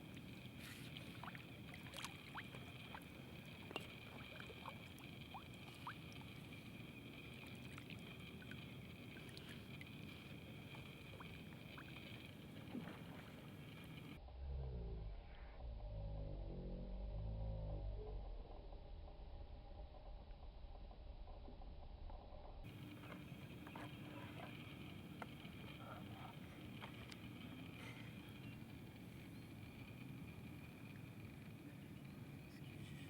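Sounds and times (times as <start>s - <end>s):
small clicks and drips: 0.0s - 14.2s, 22.7s - 32.1s
steady high hum: 0.0s - 14.2s, 18.2s - 33.0s.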